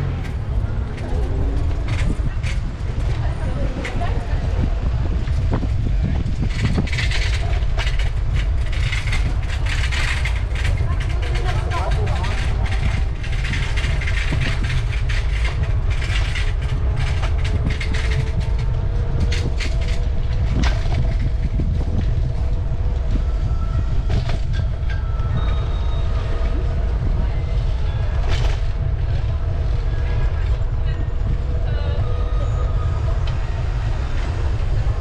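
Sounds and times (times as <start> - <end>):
wind rumble on microphone: 0.0 - 35.0.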